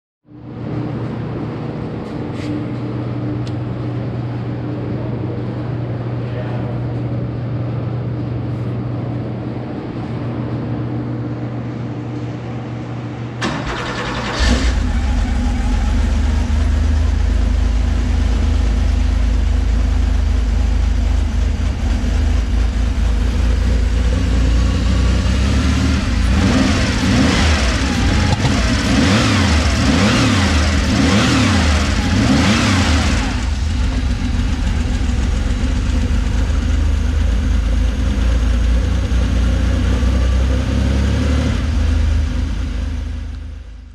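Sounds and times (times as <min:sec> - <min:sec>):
car engine idling and revving: 0:13.4 - 0:43.9.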